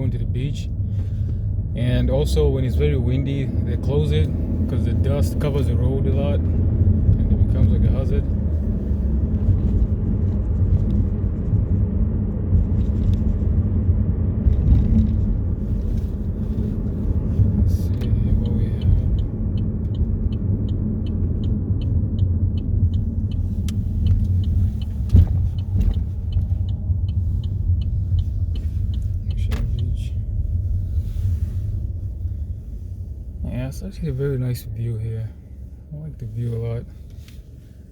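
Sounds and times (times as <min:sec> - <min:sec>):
car road noise rumble: 0:00.0 - 0:37.9
high regular ticking: 0:18.4 - 0:29.9.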